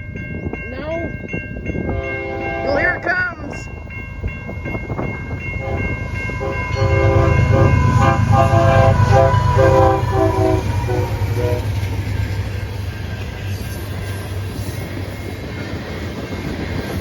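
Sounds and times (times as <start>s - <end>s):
locomotive air horn blasts: 1.9s - 3.0s, 5.6s - 11.8s.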